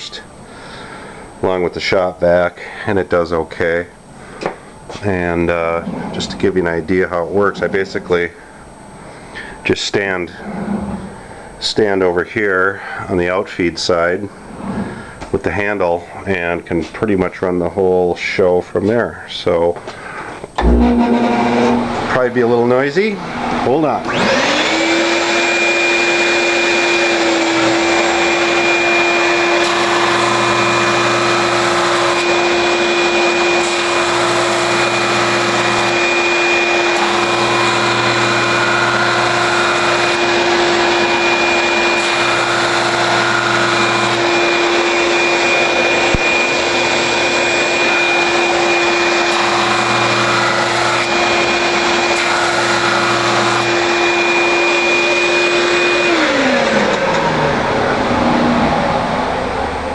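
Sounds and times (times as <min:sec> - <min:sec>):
drum sander and shop vacuum whine: 0:00.0 - 0:59.9
deep hum of boards sanding: 0:04.9 - 0:08.6, 0:09.4 - 0:12.0, 0:13.9 - 0:15.8, 0:20.0 - 0:59.0.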